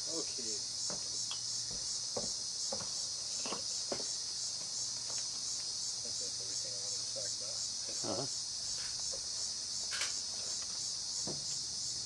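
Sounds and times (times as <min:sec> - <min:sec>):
pulsing insect chorus: 0:00.0 - 0:12.0
faint knocks: 0:00.9 - 0:04.1.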